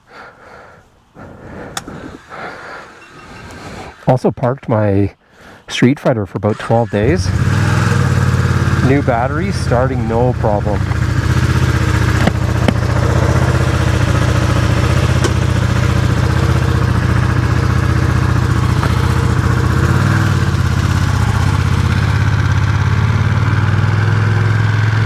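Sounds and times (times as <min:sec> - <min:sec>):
motorcycle engine idling: 0:06.9 - 0:25.0.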